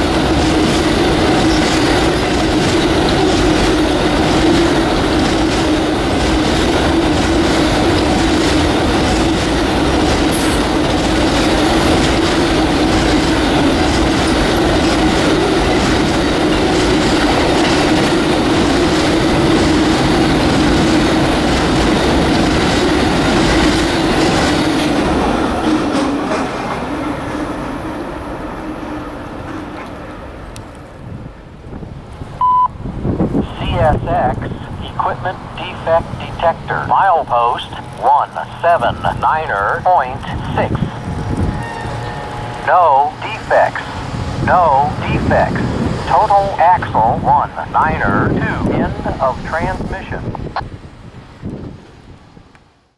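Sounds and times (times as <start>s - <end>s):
train wheels squealing: 41.5s - 42.5s.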